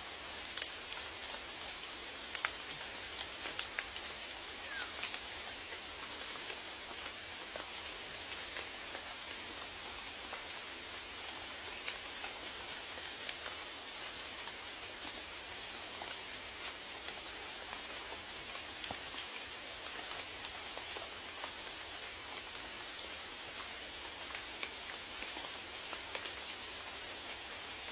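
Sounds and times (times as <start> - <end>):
rain hissing: 0.0 - 14.6
raindrops pattering on a surface: 0.0 - 27.9.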